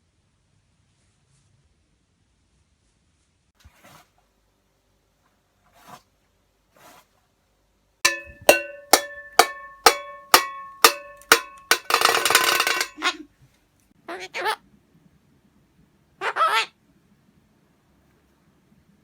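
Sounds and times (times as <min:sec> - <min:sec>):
ringing metallic strikes: 0:08.1 - 0:13.0.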